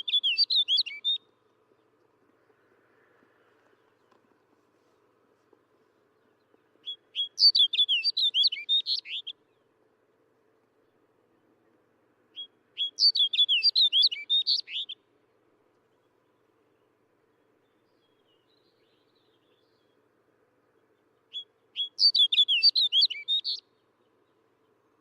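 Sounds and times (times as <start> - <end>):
bird singing warbled notes: 21.3 - 23.7.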